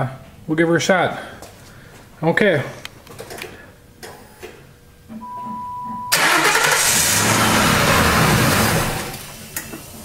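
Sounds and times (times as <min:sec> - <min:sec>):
steady beep: 0:05.2 - 0:06.2
car engine cranking and starting: 0:06.1 - 0:09.8.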